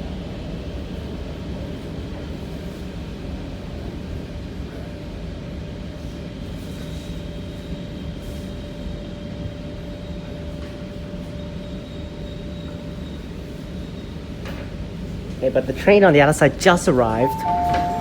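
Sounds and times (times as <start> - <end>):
train interior rumble: 12.5 - 18.0
faint high whine: 16.6 - 18.0.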